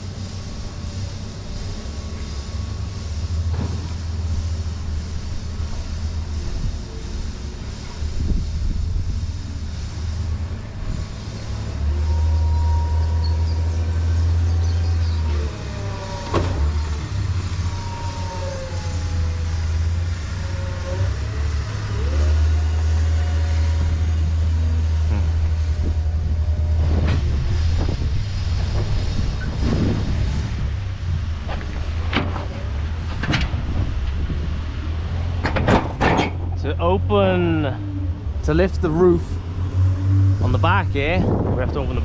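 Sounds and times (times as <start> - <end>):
heavy vehicle engine rumble: 0.0 - 42.0
sliding whine: 0.0 - 42.0.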